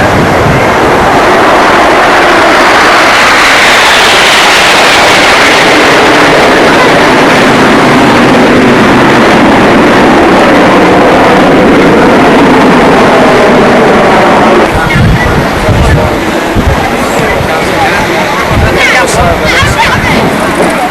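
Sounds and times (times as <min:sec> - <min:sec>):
fighter jet roar: 0:00.0 - 0:20.9.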